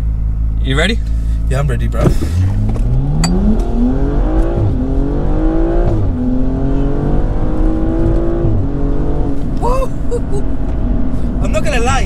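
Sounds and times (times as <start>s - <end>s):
car engine at full throttle: 0.0s - 12.0s.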